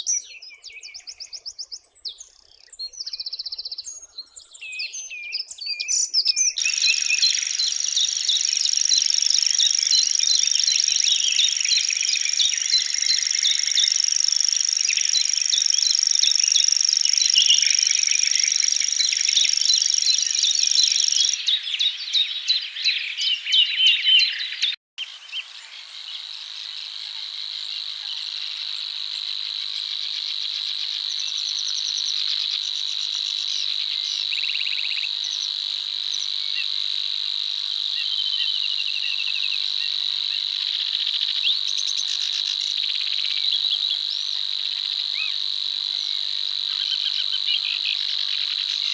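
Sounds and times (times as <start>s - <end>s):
insect trill: 6.5s - 21.6s, 25.0s - 48.9s
frog calls: 6.5s - 23.0s, 25.8s - 48.9s.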